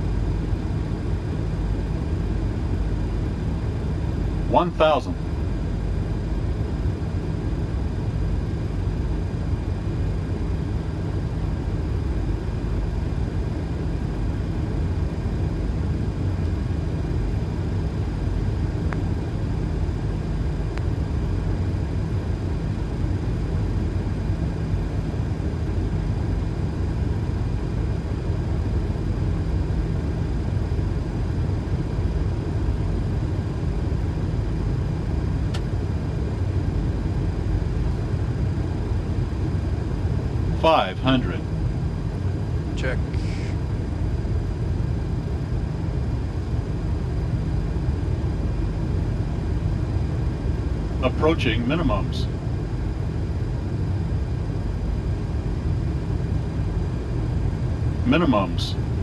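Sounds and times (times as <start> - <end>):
aircraft engine noise: 0.0 - 59.0
airflow: 43.0 - 43.6.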